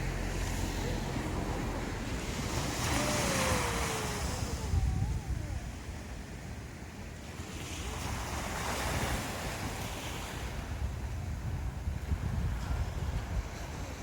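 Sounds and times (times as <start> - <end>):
sea waves breaking on shore: 0.0 - 14.0
wind rumble on microphone: 0.0 - 14.0.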